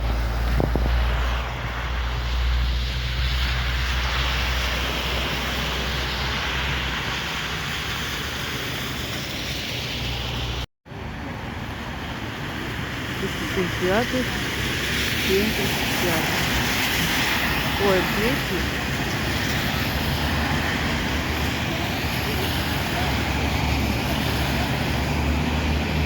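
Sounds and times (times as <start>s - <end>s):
wind on microphone: 0.0s - 10.6s.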